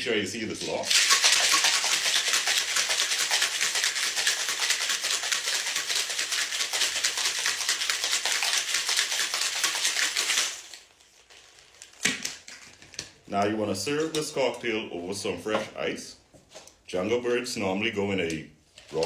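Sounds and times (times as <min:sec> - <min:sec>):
ice rattling in cocktail shaker: 0:00.7 - 0:10.9.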